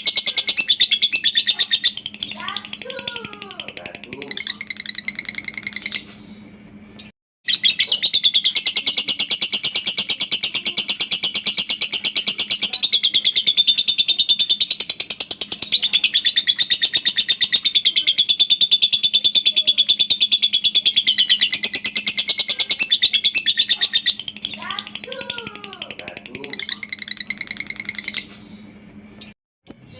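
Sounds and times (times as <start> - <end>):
lovebird shrill rapid chatter: 0.0 - 6.2, 7.5 - 28.4.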